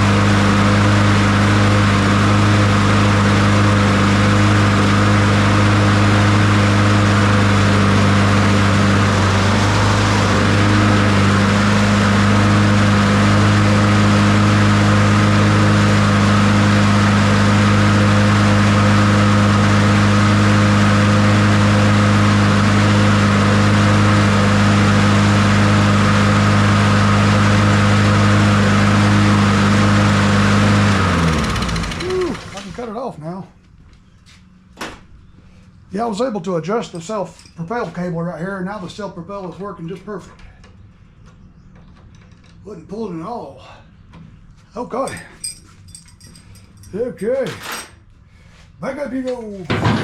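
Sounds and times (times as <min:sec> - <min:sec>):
lawn mower engine running: 0:00.0 - 0:33.2, 0:45.2 - 0:50.0.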